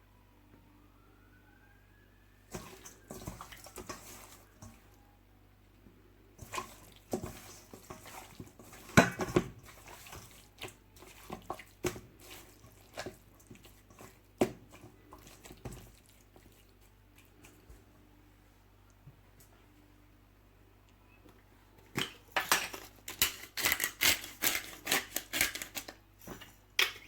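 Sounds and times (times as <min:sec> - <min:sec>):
wet squelches of raw meat: 0:02.5 - 0:05.0, 0:09.6 - 0:17.9.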